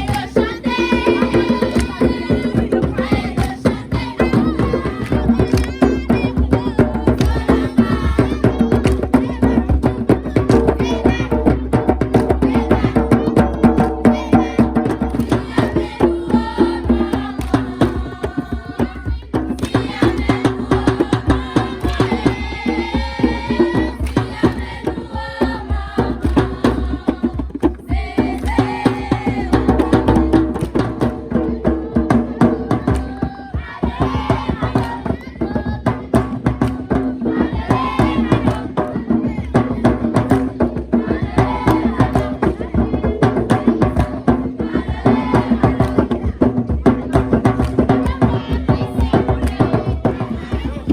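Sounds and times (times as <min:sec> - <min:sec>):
group singing: 0:00.0 - 0:50.9
hand drums beating: 0:00.0 - 0:50.9.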